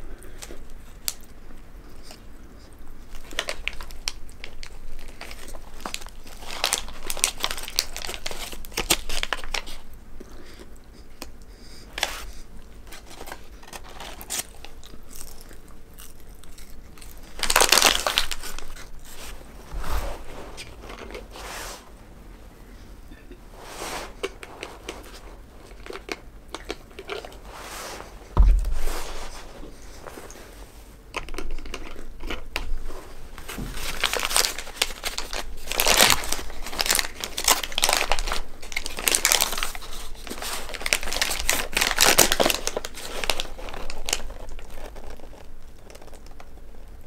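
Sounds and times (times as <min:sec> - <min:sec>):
person chewing hamburger: 0:00.0 - 0:19.3
paper wrapper crinkling: 0:03.0 - 0:09.9, 0:11.9 - 0:21.5, 0:24.1 - 0:47.0.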